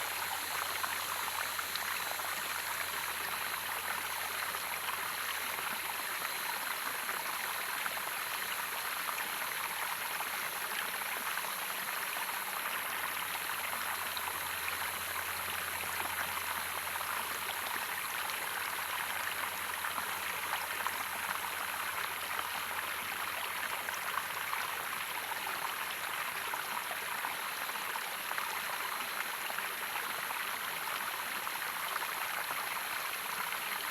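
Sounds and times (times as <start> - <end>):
running water rushing: 0.0 - 7.3.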